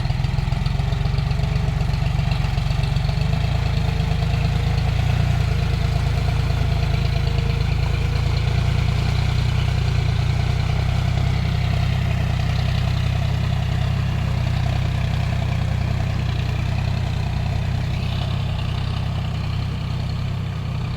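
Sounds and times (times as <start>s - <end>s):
tractor diesel engine running: 0.0s - 20.9s.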